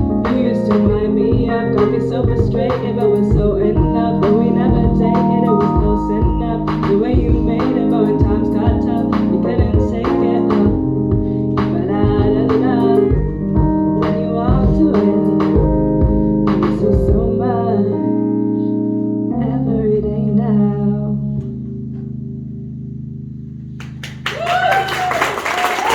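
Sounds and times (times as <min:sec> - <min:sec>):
person singing wordless vocals: 0:00.0 - 0:18.4.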